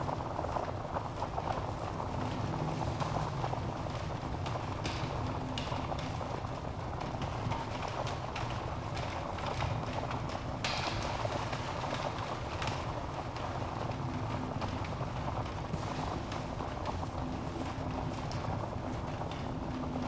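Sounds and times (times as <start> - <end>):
fire flames rumbling: 11.2 - 20.0.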